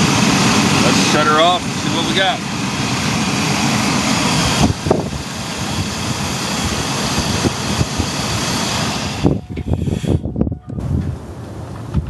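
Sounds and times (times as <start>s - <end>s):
van engine idling: 0.0s - 10.4s.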